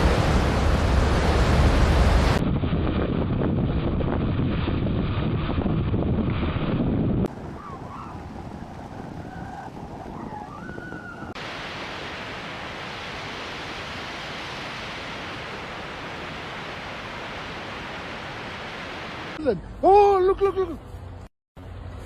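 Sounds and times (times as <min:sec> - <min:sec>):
blizzard wind rushing: 0:00.0 - 0:19.4.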